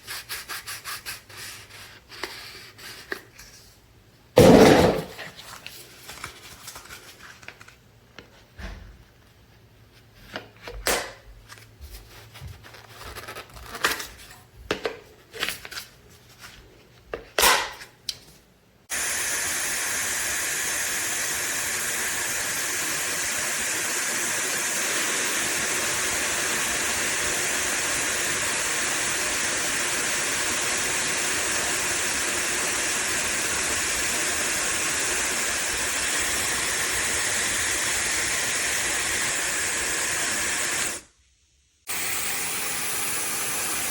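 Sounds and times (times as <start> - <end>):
hair dryer blowing: 4.4 - 5.1, 18.9 - 41.0, 41.9 - 43.9.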